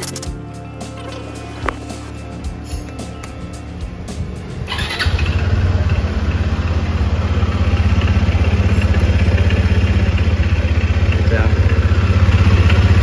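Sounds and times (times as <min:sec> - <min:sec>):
scooter engine starting and idling: 0:03.8 - 0:13.0.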